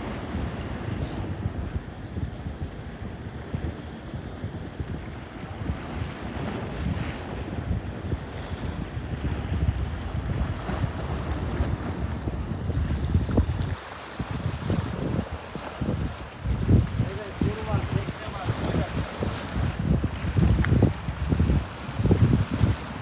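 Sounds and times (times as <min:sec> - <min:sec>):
wind buffeting microphone: 0:00.0 - 0:23.0
sea waves sloshing: 0:05.2 - 0:23.0.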